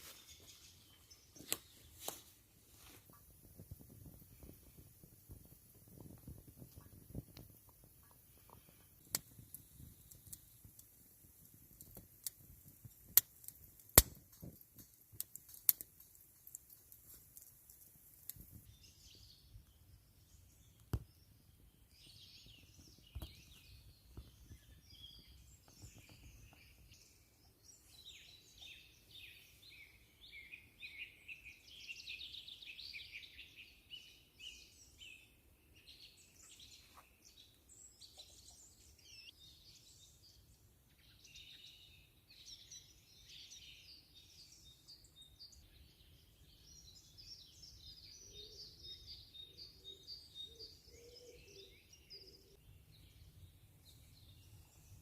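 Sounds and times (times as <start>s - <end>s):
songbirds singing and chirping: 0.0s - 55.0s
sharp clicks and snaps: 9.0s - 18.7s.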